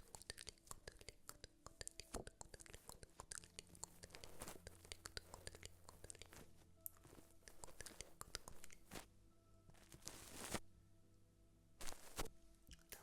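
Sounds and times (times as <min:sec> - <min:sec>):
small clicks and crackles: 0:00.0 - 0:09.1, 0:09.7 - 0:10.6.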